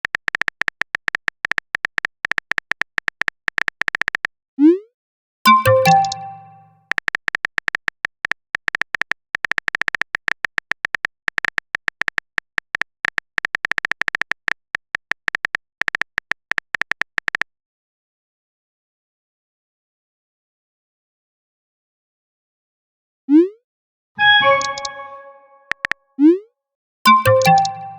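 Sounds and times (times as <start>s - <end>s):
phone keyboard clicks: 0.0s - 4.3s, 5.5s - 17.4s, 24.4s - 25.0s, 25.7s - 26.0s, 27.1s - 27.9s.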